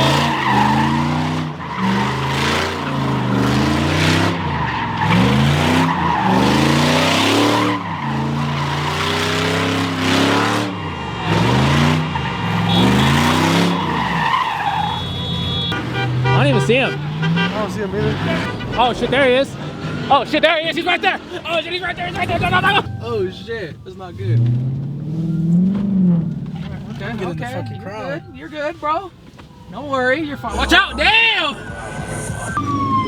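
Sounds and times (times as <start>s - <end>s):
car engine revving: 0.0s - 27.8s, 29.5s - 33.0s
tires squealing and skidding: 0.0s - 33.0s.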